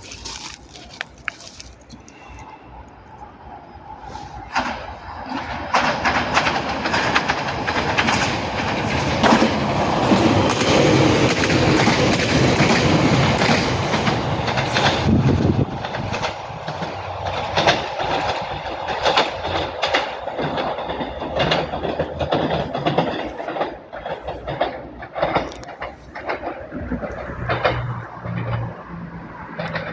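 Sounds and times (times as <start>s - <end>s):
train rumbling: 0.0s - 29.9s
wheels clicking over rail joints: 0.0s - 29.9s.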